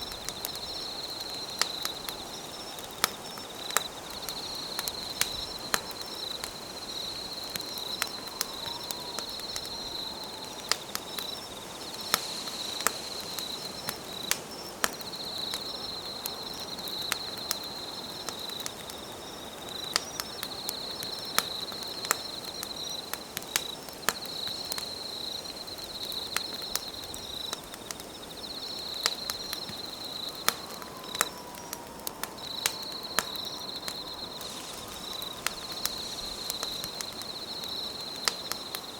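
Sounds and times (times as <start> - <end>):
insects trilling: 0.0 - 38.9
wood campfire crackling and popping: 0.0 - 38.9.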